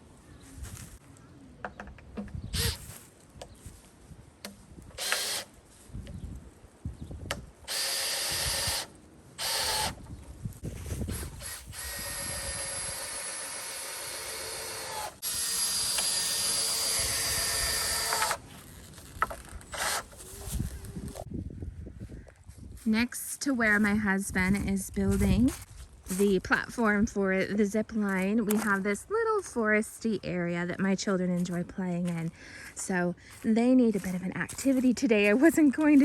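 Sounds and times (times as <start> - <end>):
power drill running: 2.6 - 2.8, 5.0 - 5.5, 7.7 - 10.0, 11.1 - 18.4, 19.7 - 20.2.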